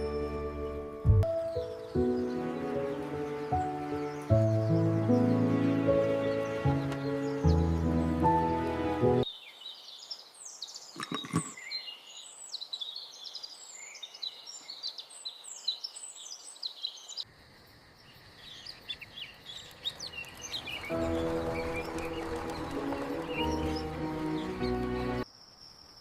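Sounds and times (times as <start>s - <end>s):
soft music: 0.0s - 9.3s, 20.2s - 25.2s
small birds chirping: 0.0s - 26.0s.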